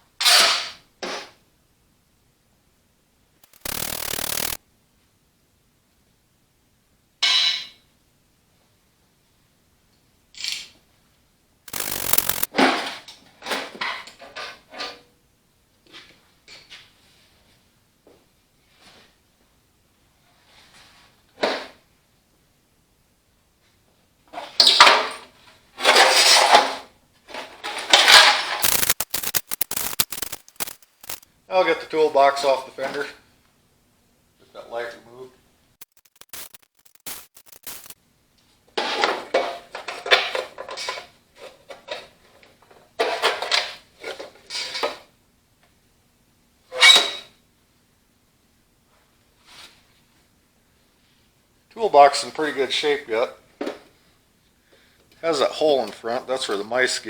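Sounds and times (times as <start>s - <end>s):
metal rattling bursts: 3.4s - 4.6s, 11.7s - 12.5s, 28.6s - 31.2s.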